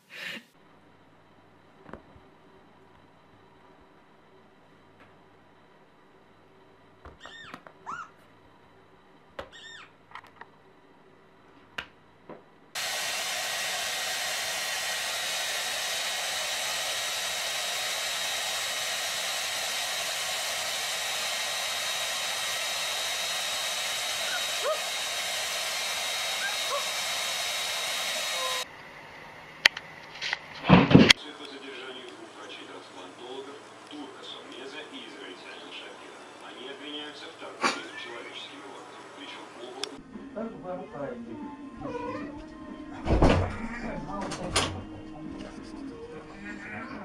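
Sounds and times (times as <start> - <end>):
hair dryer blowing: 12.8 - 28.7.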